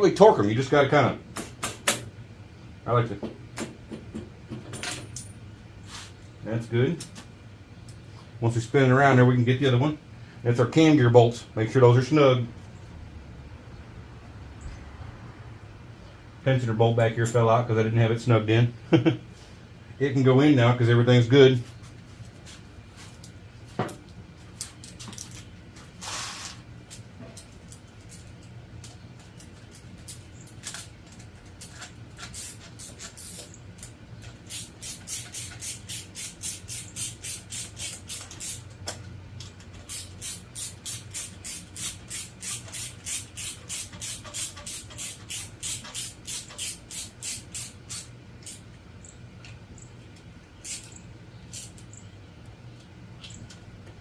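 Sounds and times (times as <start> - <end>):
hand ratchet wrench rasping: 31.6 - 33.9, 34.5 - 38.6, 39.8 - 48.6, 50.6 - 50.9, 51.5 - 51.7.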